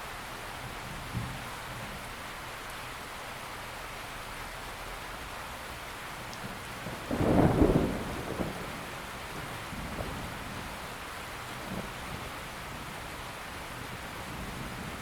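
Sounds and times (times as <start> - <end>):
steady rain falling: 0.0 - 15.0
thunder rumble: 6.4 - 10.8.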